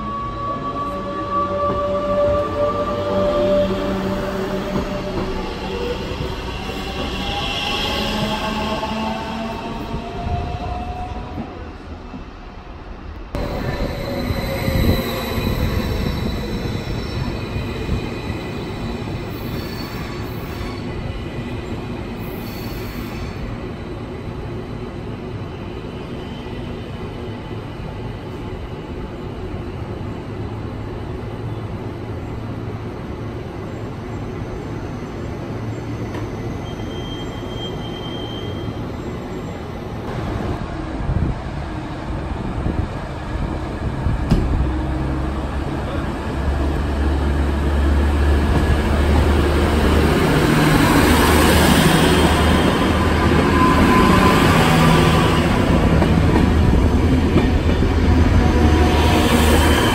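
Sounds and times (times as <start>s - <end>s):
train wheels rumbling: 0.0s - 22.3s, 40.0s - 59.9s.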